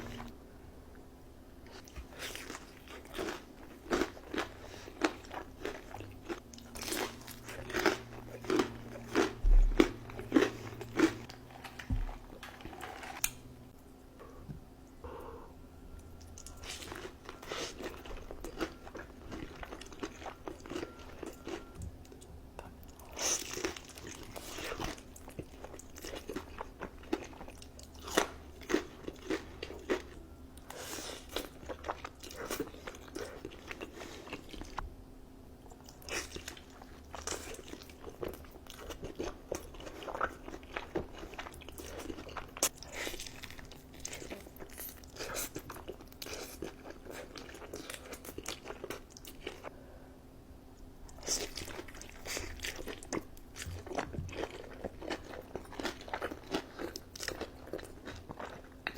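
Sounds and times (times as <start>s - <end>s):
crunching crispy food: 1.8s - 13.3s, 51.1s - 58.9s.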